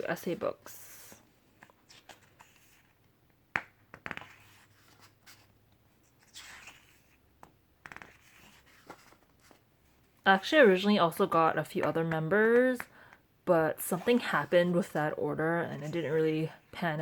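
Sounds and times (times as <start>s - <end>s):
hands tapping book: 3.5s - 4.4s.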